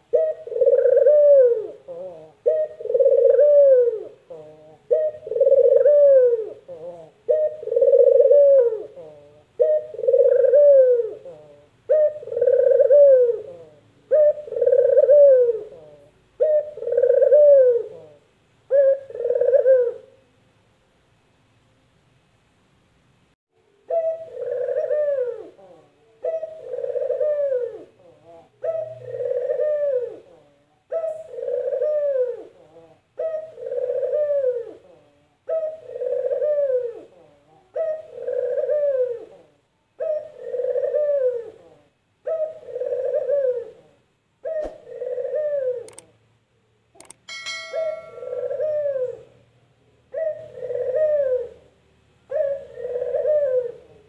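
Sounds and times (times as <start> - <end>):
dove cooing: 0.0 - 20.2, 23.7 - 46.2, 47.0 - 49.5, 50.1 - 54.0
sharp click: 45.9 - 46.1, 47.0 - 47.3
short high tone: 47.3 - 48.9.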